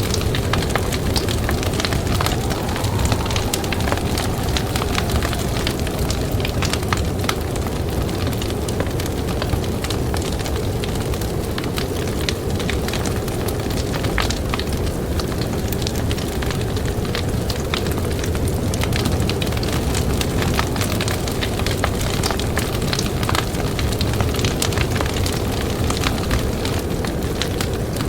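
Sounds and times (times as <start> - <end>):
campfire crackling and popping: 0.0 - 8.7
blizzard wind rushing: 0.0 - 9.4.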